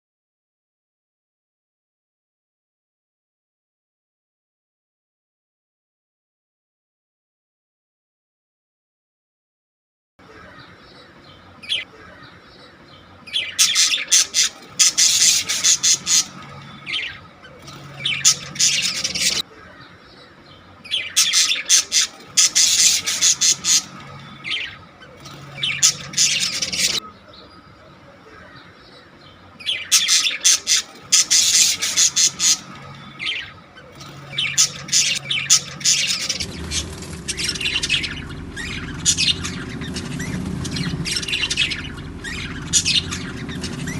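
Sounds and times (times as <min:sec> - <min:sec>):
parrots squawking and chirping: 0:10.3 - 0:43.9
low hum: 0:35.2 - 0:43.9.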